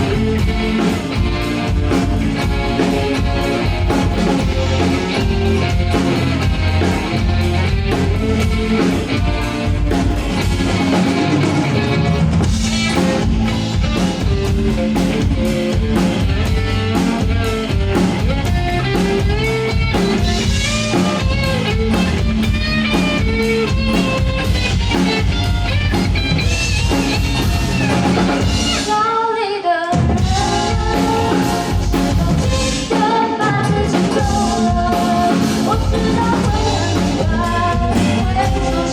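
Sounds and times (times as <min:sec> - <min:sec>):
pop-rock band playing: 0:00.0 - 0:38.9
person singing: 0:28.8 - 0:38.9.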